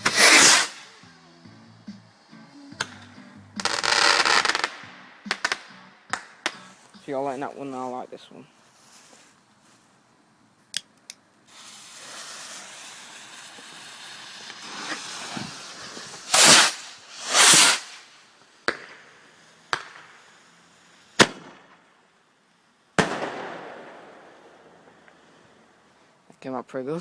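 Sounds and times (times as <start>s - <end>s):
loud firework bangs: 0.0s - 0.9s, 11.5s - 20.2s, 21.2s - 21.8s, 23.0s - 24.8s
firework hiss: 0.0s - 1.1s, 1.8s - 8.0s, 11.4s - 26.1s
sharp firework cracks: 0.0s - 1.1s, 2.7s - 6.9s, 11.5s - 22.0s, 22.9s - 25.2s.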